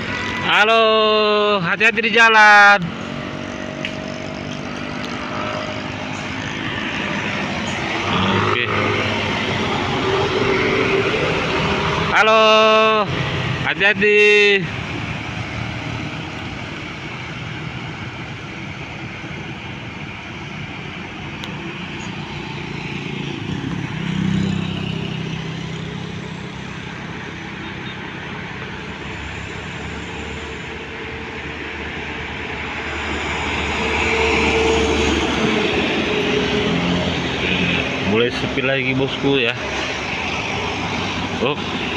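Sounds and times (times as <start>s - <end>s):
heavy vehicle engine passing: 0.0s - 41.9s
road traffic passing: 0.0s - 41.9s.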